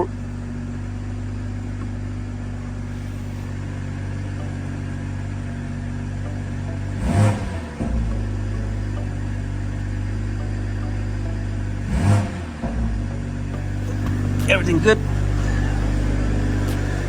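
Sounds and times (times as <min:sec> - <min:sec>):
car engine idling: 0:00.0 - 0:17.0
engine revving: 0:00.0 - 0:17.0.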